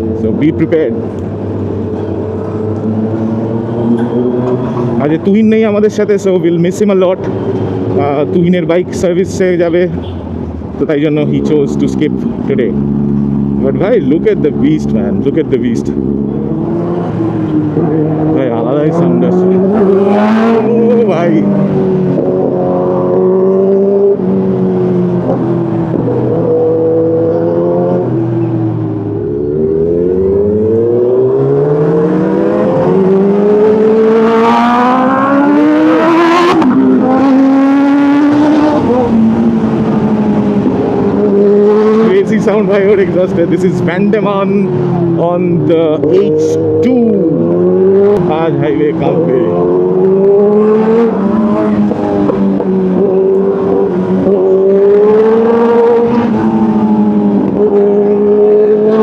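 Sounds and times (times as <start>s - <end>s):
motorcycle engine accelerating: 12.6s - 59.0s.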